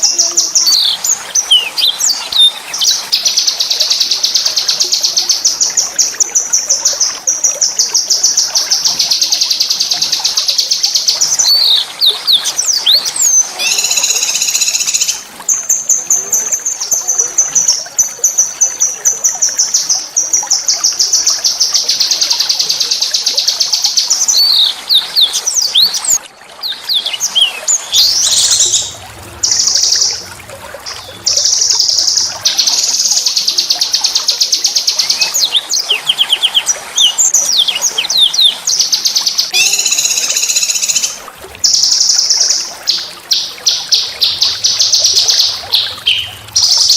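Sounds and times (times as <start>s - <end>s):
swooping bird chirps: 13.6s - 15.2s, 26.6s - 46.9s.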